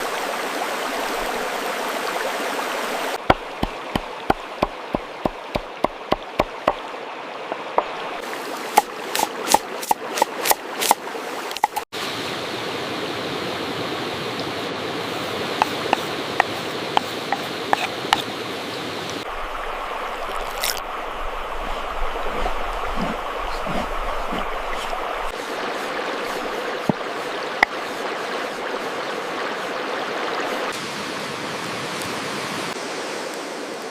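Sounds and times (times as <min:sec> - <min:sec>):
rushing water-like noise: 0:00.0 - 0:33.9
sharp knocks: 0:03.2 - 0:06.8.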